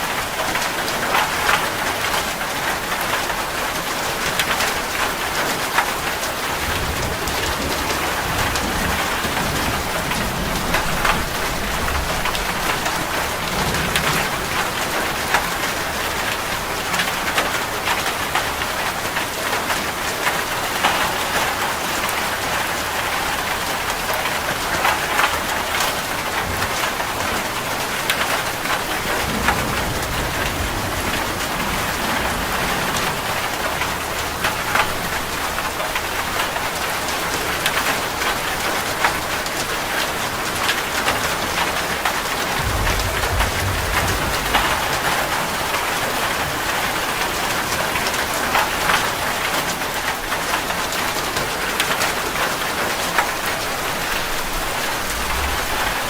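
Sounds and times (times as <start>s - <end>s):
steady rain falling: 0.0s - 56.0s
raindrops ticking on hard surface: 0.1s - 56.0s
faint low rumble: 42.4s - 46.9s, 54.2s - 56.0s.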